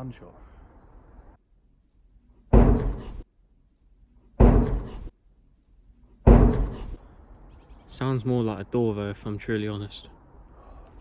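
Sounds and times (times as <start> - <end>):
loud bang: 6.3 - 7.0.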